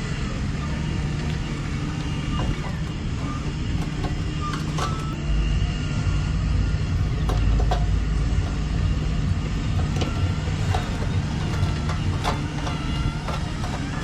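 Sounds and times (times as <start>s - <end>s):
clicks and knocks: 0.6s - 5.2s, 7.2s - 14.0s
model motor running: 7.0s - 14.0s.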